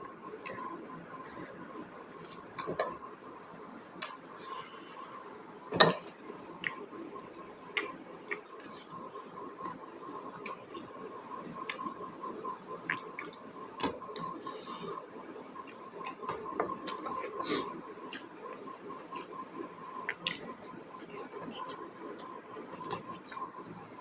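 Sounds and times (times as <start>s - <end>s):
person chewing food: 5.8s - 6.9s, 7.6s - 10.9s, 12.8s - 15.0s, 15.6s - 19.4s, 20.0s - 23.6s.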